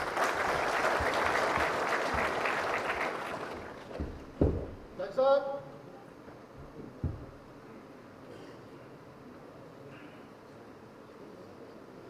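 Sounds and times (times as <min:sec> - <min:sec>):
audience applauding: 0:00.0 - 0:04.2.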